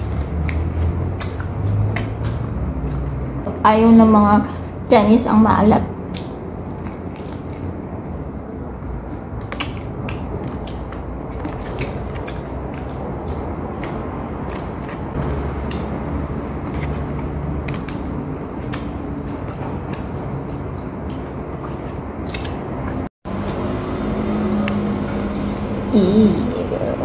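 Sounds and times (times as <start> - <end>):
crunchy chewing: 0.0 - 3.4, 6.0 - 23.7
wet mouth sounds: 0.0 - 3.4, 6.0 - 18.0, 18.6 - 23.6.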